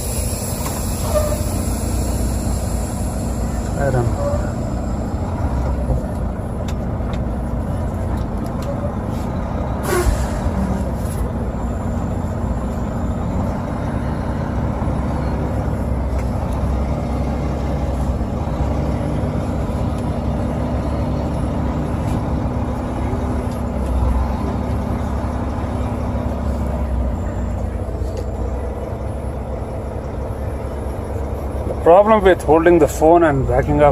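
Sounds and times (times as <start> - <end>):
diesel truck engine running: 0.0 - 33.9
short sharp air hiss: 9.8 - 10.5.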